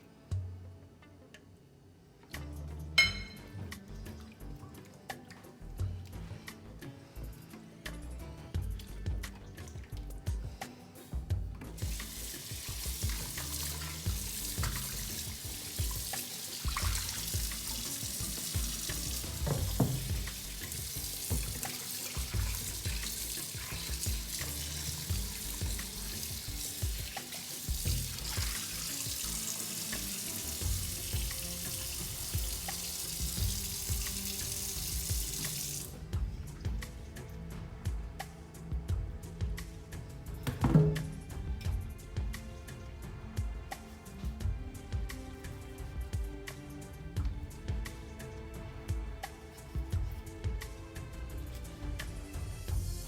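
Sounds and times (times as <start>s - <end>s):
tap running into sink: 11.8s - 35.9s, 40.4s - 41.3s.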